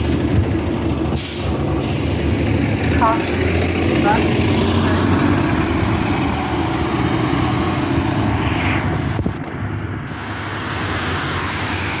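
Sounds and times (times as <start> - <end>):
bus drivetrain hum: 0.0 - 12.0
road noise: 0.0 - 12.0.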